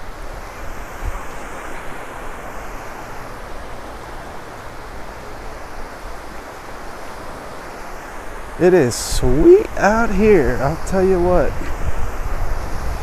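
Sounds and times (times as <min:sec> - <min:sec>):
surf on a beach: 0:00.0 - 0:13.0
wind on microphone: 0:00.0 - 0:13.0.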